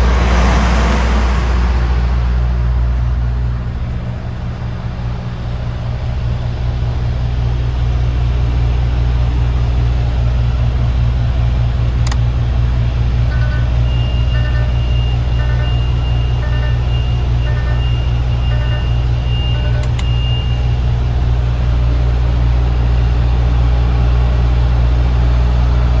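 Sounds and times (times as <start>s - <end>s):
diesel truck engine idling: 0.0s - 26.0s
sharp click: 11.8s - 12.2s, 19.7s - 20.2s
high electronic beep: 13.3s - 20.8s.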